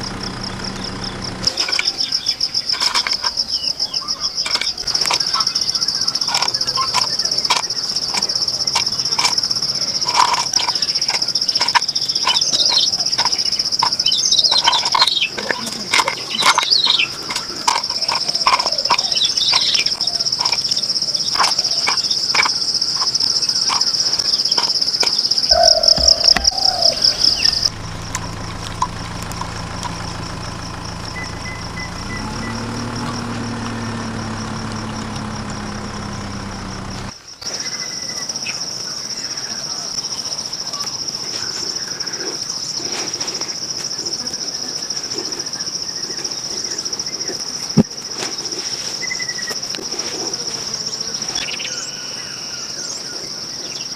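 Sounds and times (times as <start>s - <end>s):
small motor humming: 0.0s - 3.6s, 25.5s - 37.2s
bird chirps: 0.0s - 27.7s, 29.9s - 34.0s
high insect trill: 0.0s - 53.9s
small clicks: 4.4s - 37.2s.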